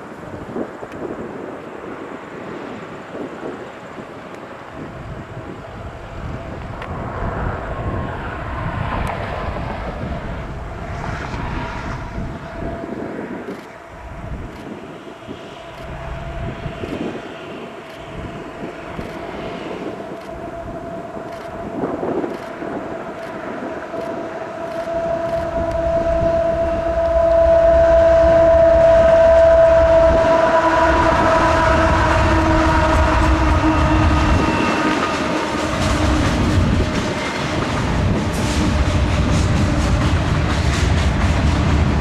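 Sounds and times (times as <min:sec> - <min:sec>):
freight train approaching: 0:00.0 - 0:42.0.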